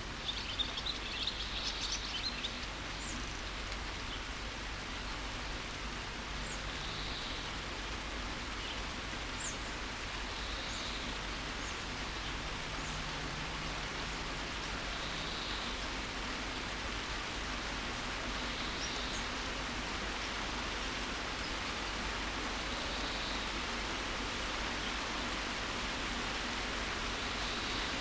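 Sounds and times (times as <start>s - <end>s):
steady rain: 0.0s - 28.0s
birds chirping: 0.2s - 4.4s.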